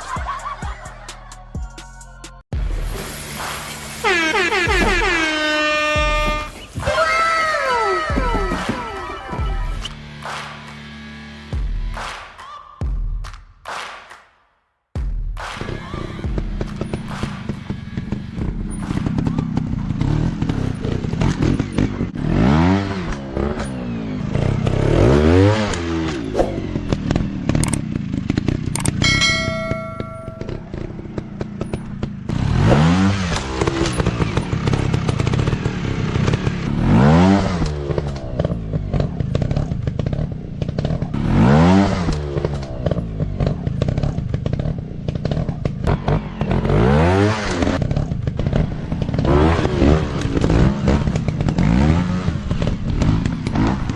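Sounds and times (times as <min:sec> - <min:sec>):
dirt bike engines revving: 0:03.0 - 0:11.5, 0:15.6 - 0:53.9
engine clatter: 0:15.5 - 0:53.9
brief steady tone: 0:29.0 - 0:30.7.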